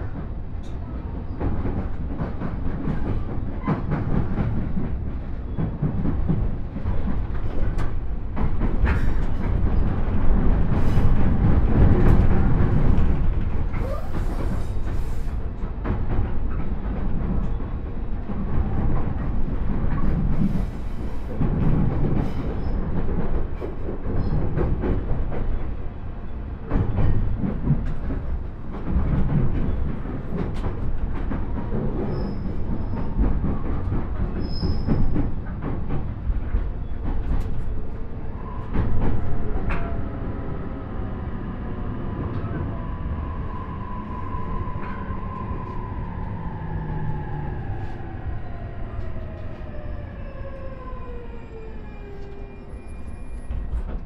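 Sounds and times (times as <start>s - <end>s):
train wheels clattering on rail joints: 0.0s - 40.1s.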